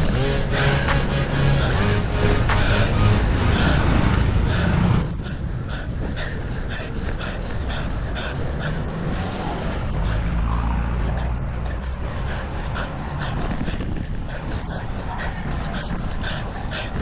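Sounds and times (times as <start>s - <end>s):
wind rumble on microphone: 3.3s - 17.0s.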